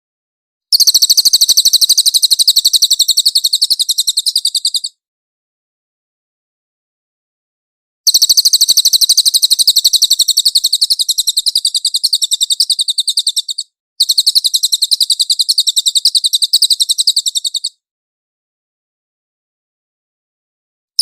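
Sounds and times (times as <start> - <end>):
songbird high-pitched trill: 0.7 - 5.0, 8.1 - 17.8.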